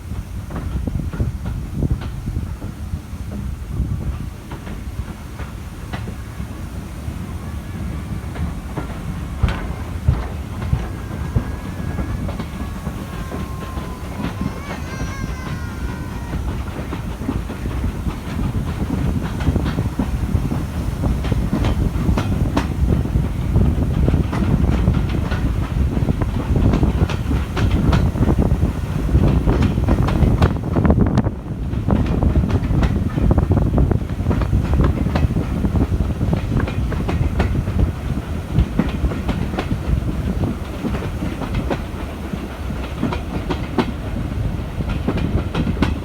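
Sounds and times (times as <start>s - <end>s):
train coaches rumbling on track: 0.0s - 46.0s
wheels clicking over rail joints: 0.4s - 46.0s
faint wavering squeal: 9.6s - 14.8s.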